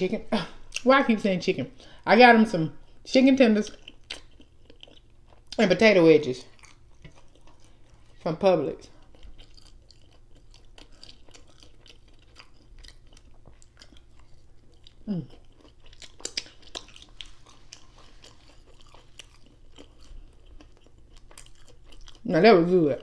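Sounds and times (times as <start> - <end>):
person chewing: 3.7 - 5.6, 6.4 - 8.3, 8.9 - 22.3.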